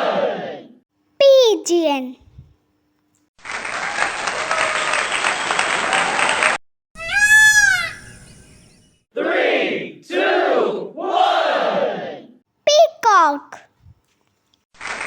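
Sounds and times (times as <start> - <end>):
applause: 3.4 - 6.6, 14.8 - 15.0
peacock calling: 7.0 - 8.9.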